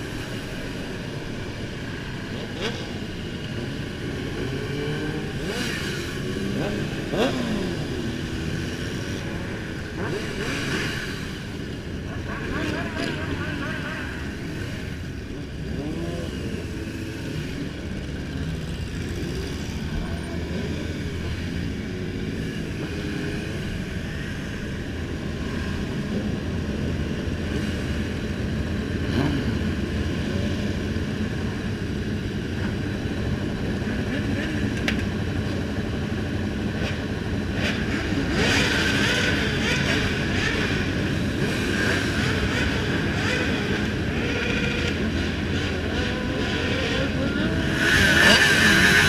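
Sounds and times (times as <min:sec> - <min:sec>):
motorcycle engines droning: 0:00.0 - 0:49.0.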